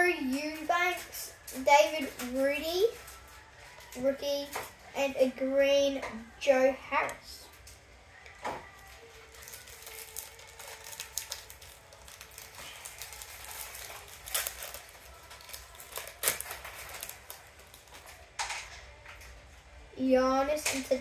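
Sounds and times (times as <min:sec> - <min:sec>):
wrapper crinkling: 0:00.8 - 0:04.7, 0:07.5 - 0:19.2.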